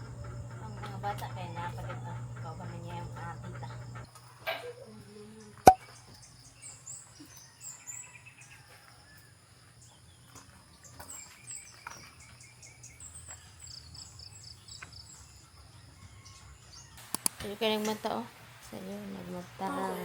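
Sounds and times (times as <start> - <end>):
birds chirping: 0.0 - 4.1
insects trilling: 0.0 - 5.6.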